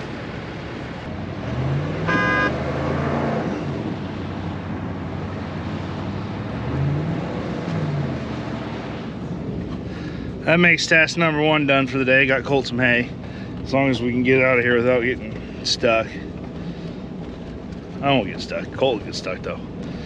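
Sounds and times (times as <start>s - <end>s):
vehicle engine revving: 0.0s - 10.6s
brief high tone: 2.1s - 2.6s.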